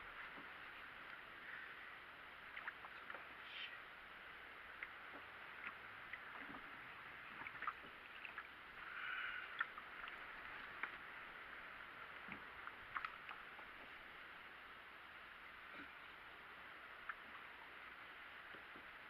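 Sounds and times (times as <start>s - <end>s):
water lapping against kayak hull: 0.0s - 14.7s.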